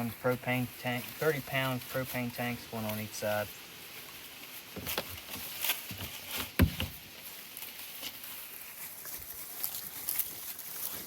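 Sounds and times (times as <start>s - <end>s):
uneven footsteps: 2.9s - 11.0s.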